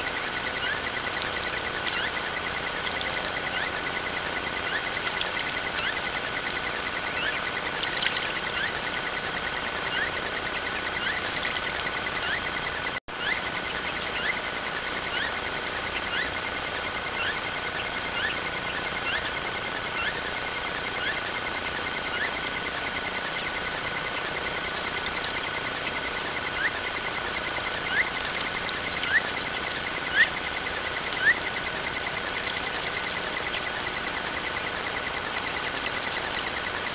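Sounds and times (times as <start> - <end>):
small bird chirping: 0.0 - 14.5, 15.1 - 16.3, 17.2 - 19.4, 26.5 - 36.9.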